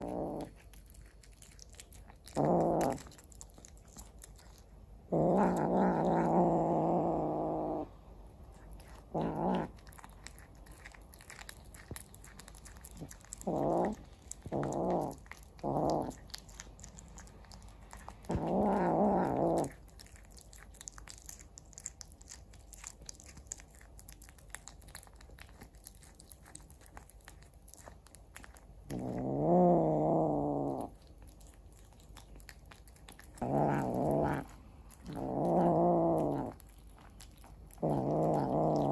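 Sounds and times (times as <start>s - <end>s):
cat chewing and crunching: 0.0s - 38.9s
cat growling: 0.0s - 38.9s.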